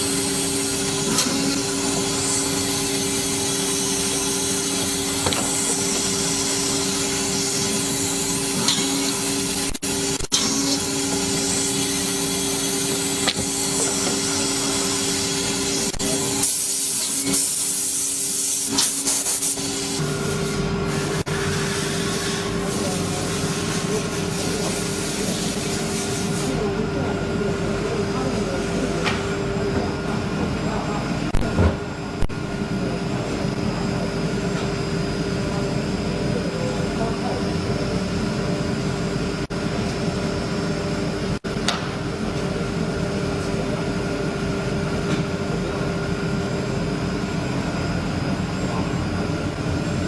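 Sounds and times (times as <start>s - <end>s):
machinery humming: 0.0s - 50.0s.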